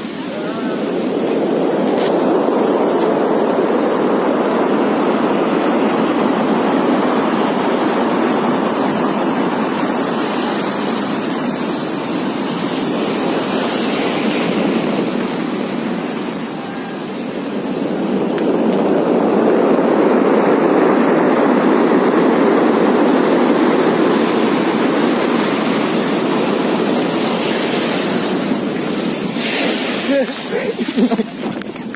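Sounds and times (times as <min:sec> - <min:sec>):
strong wind: 0:00.0 - 0:31.9
heavy rain: 0:06.7 - 0:31.9.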